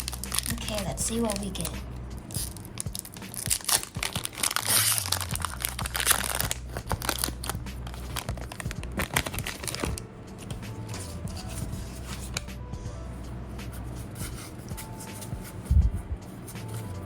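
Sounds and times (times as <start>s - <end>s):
wrapper tearing: 0.0s - 0.6s, 2.3s - 10.0s
wrapper crackling: 0.0s - 10.0s.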